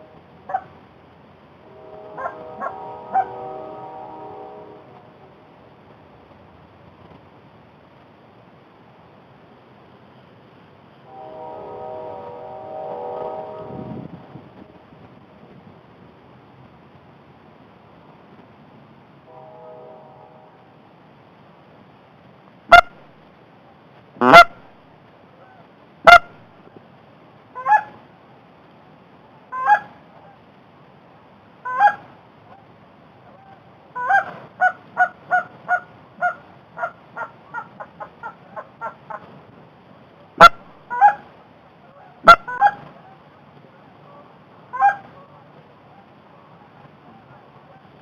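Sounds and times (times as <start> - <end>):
goose honking and clucking: 2.0 - 3.8, 24.2 - 24.6, 26.1 - 26.3, 27.6 - 28.0, 29.5 - 29.9, 31.6 - 32.1, 33.4 - 39.3, 40.4 - 41.3, 41.9 - 43.2, 44.1 - 45.4.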